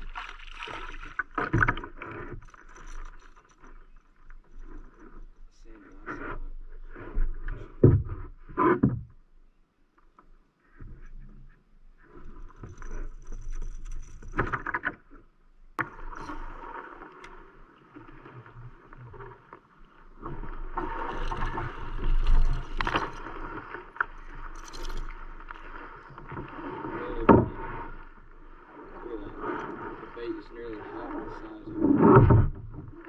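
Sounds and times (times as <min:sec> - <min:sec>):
water splashing against hull: 0:00.0 - 0:09.0, 0:15.8 - 0:33.0
kayak paddling: 0:00.0 - 0:33.0.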